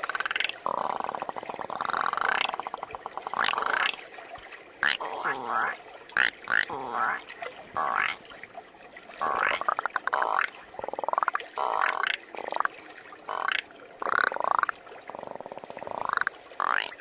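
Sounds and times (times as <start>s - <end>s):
person imitating frog croaks: 0.0s - 4.0s, 4.8s - 7.2s, 7.8s - 8.2s, 9.2s - 12.2s, 13.3s - 17.0s.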